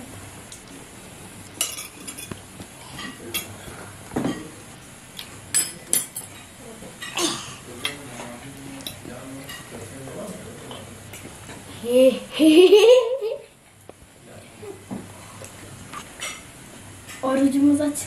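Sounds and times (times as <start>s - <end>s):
dishes and cutlery clinking: 1.6s - 4.5s, 5.5s - 9.8s, 16.0s - 16.5s.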